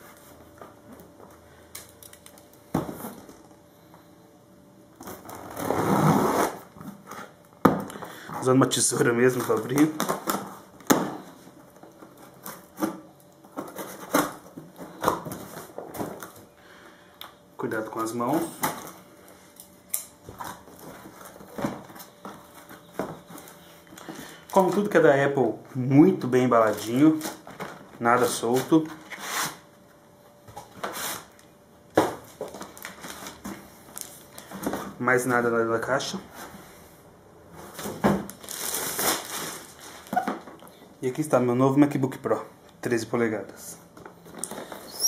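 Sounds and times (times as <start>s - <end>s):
plastic crinkling: 26.2s - 29.2s, 32.2s - 34.9s, 37.7s - 40.8s.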